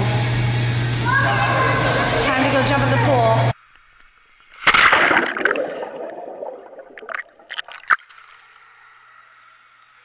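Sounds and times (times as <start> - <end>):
short sharp splashes: 4.6 - 8.2
pool water churning: 4.6 - 8.6.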